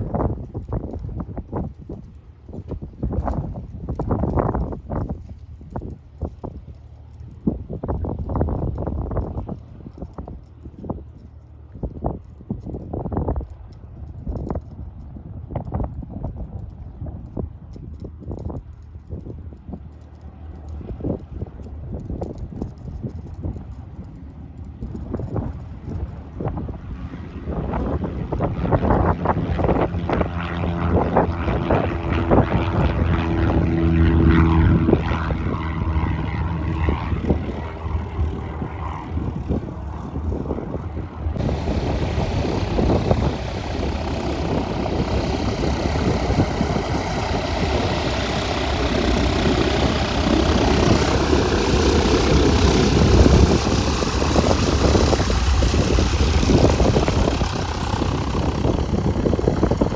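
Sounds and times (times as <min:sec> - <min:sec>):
propeller plane engine drone: 0:00.0 - 0:59.9
loud broad rushing noise: 0:41.4 - 0:59.9.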